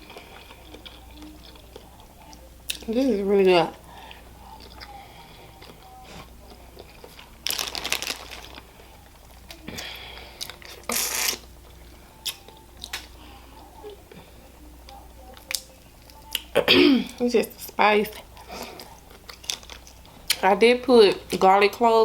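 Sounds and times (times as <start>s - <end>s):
person chewing: 0.0s - 2.9s, 4.1s - 13.2s, 14.9s - 16.6s, 18.1s - 20.4s
crunching crackling bites: 6.8s - 8.7s.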